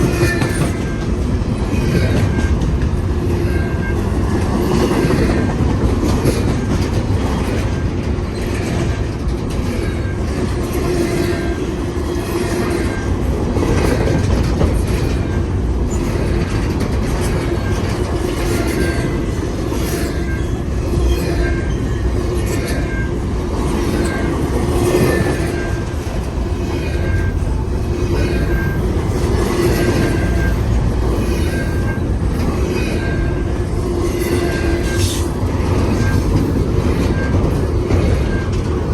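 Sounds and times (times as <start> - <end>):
freight train rumbling past: 0.0 - 38.9
wheels clicking over rail joints: 0.0 - 38.9.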